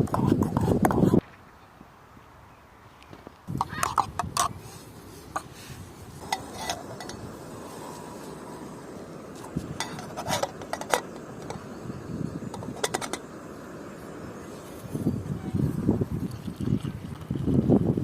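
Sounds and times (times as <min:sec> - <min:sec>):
metal spoon clinking cookware: 0:06.2 - 0:07.2.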